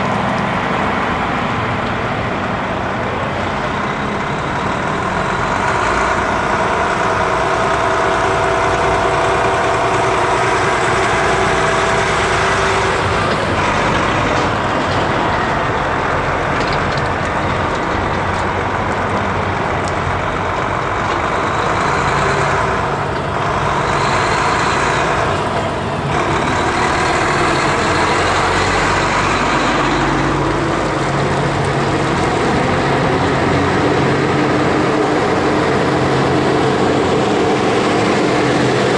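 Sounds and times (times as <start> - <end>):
trucks diesel engines passing: 0.0 - 38.9.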